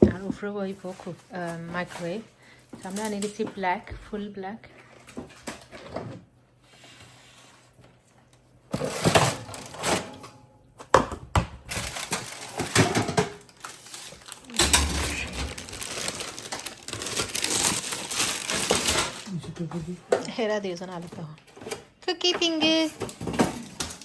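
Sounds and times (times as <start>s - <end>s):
objects clicking and rattling: 11.7s - 24.0s.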